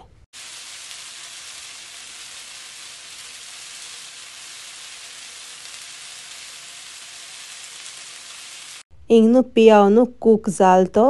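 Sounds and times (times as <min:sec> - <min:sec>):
onions sizzling in oil: 0:00.3 - 0:08.9.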